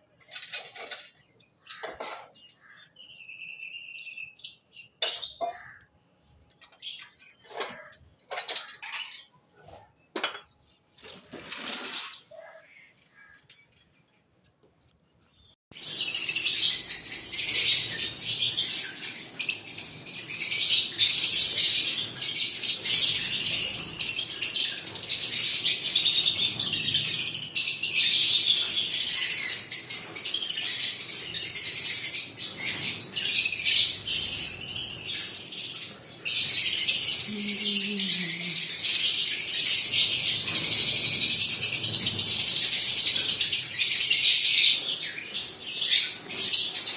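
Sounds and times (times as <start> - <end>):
lovebirds chirping: 12.3 - 46.9.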